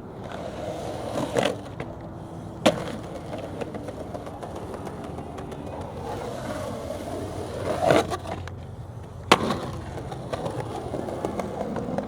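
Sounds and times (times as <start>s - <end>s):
skateboard scraping: 0.0s - 12.0s
skateboard wheels rolling on concrete: 0.0s - 12.0s
skateboard smacking the ground: 0.2s - 12.0s.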